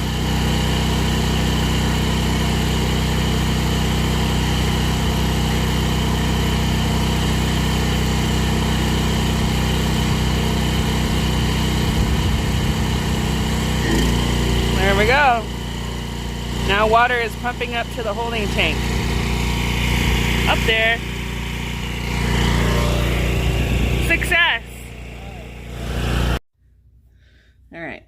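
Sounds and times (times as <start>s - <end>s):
generator engine running: 0.0s - 26.4s
high steady whine: 16.6s - 26.4s.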